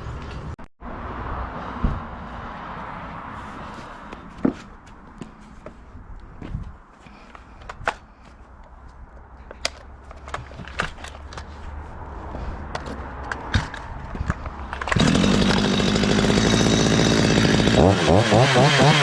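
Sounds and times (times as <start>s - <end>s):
footsteps: 1.8s - 7.5s
knocks of wood and tools: 4.1s - 5.8s
chainsaw running: 14.8s - 19.0s.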